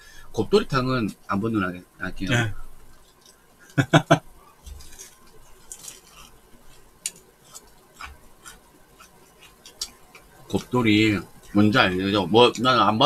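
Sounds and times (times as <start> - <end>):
people chewing crunchy food: 2.9 - 12.8.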